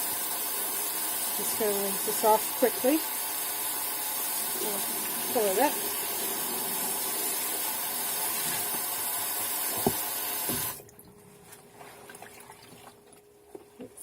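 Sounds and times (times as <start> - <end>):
water running from sink tap: 0.0 - 10.8
wet fabric handling: 10.8 - 14.0.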